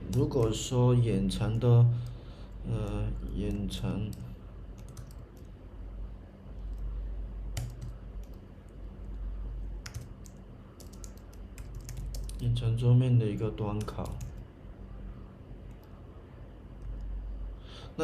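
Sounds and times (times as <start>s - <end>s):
computer keyboard typing: 0.0s - 0.6s, 1.4s - 5.5s, 7.5s - 8.4s, 9.8s - 12.5s, 13.6s - 14.4s
steady low hum: 0.0s - 18.0s.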